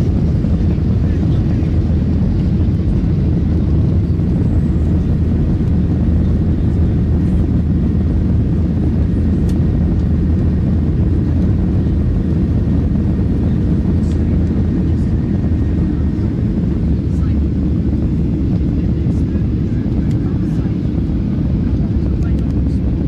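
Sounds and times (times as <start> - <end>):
airliner taking off: 0.0 - 23.0.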